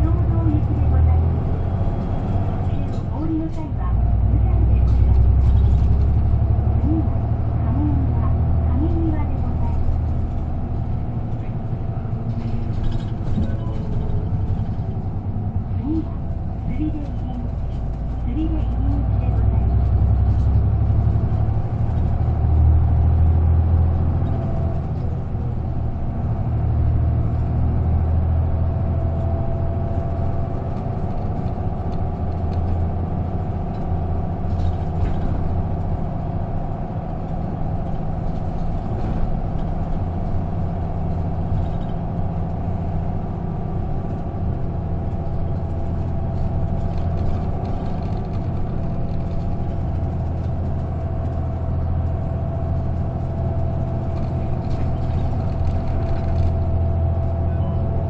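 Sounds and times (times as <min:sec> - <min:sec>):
bus diesel engine hum: 0:00.0 - 0:58.0
road noise: 0:00.0 - 0:58.0.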